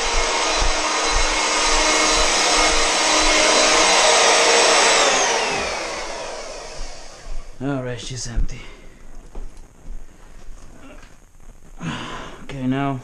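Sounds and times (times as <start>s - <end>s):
vacuum motor whining: 0.0s - 7.6s.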